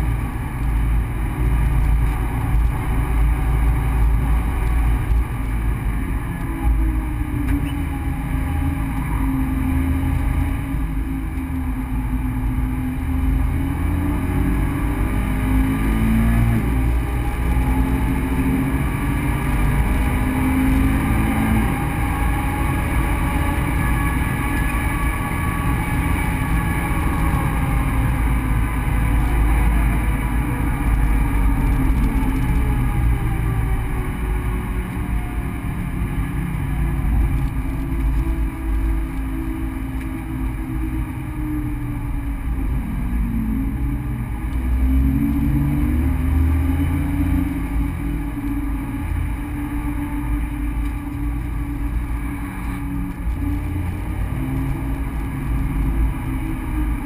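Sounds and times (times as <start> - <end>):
car engine running under load: 0.0 - 57.0
low road rumble: 0.0 - 57.0.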